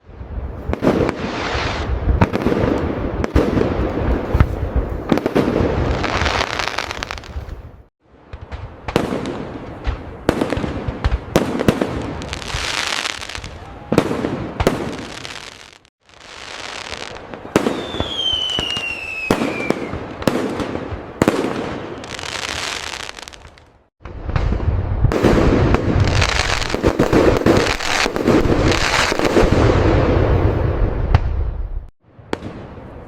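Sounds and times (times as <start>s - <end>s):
barrage of firework booms: 0.0s - 32.9s
fireworks bursting and crackling: 0.0s - 33.0s
falling firework whistle: 16.3s - 20.1s.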